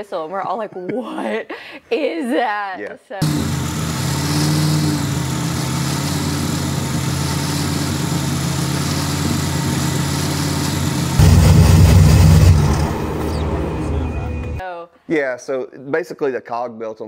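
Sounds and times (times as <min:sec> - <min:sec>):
car engine idling: 0:03.2 - 0:14.6.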